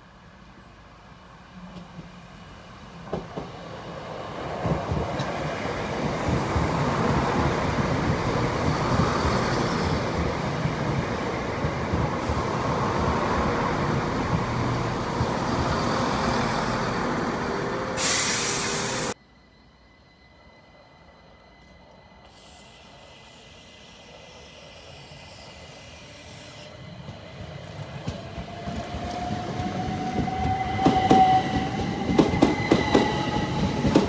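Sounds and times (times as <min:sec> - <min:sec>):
diesel train passing: 0:00.0 - 0:34.0
loud hiss burst: 0:17.9 - 0:19.2.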